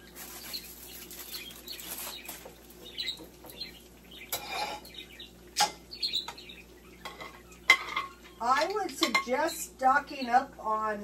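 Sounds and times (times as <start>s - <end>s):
cookware scraping: 4.3s - 4.9s, 7.0s - 9.3s
utensils and pans clinking: 4.3s - 4.9s, 7.0s - 9.5s.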